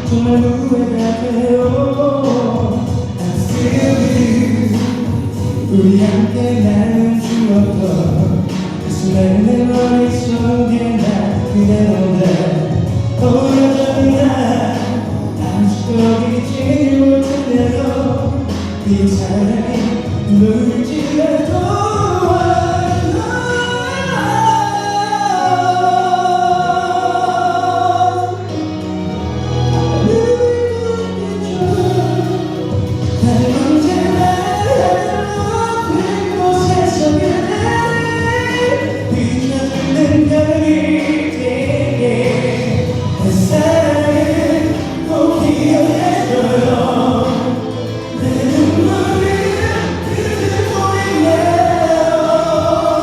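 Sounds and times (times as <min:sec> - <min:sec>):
backing track: 0:00.0 - 0:53.0
man singing pop ballad: 0:00.0 - 0:53.0
choir-like voices: 0:22.8 - 0:53.0.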